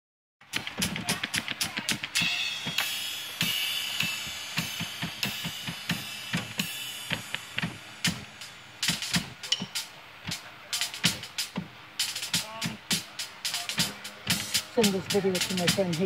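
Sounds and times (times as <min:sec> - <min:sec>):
snare drum hits: 0:00.5 - 0:16.0
cymbal crashes: 0:02.0 - 0:10.0, 0:10.7 - 0:16.0.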